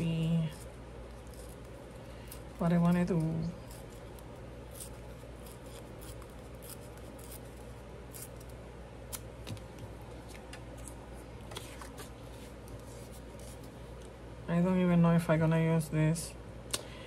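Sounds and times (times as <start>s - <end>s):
scissors cutting paper: 0.0s - 8.5s
steady low hum: 0.0s - 17.0s.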